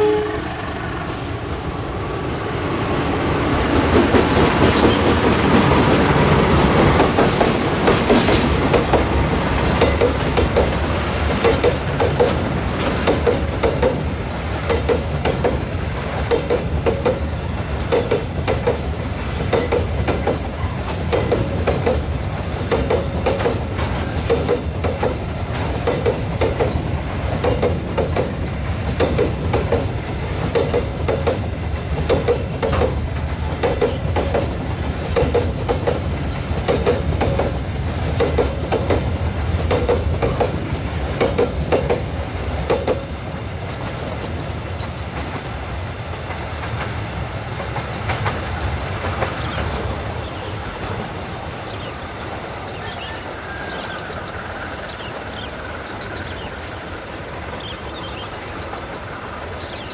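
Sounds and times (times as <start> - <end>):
low train rumble: 0.0 - 59.9
train wheels clacking over rail joints: 3.4 - 51.1.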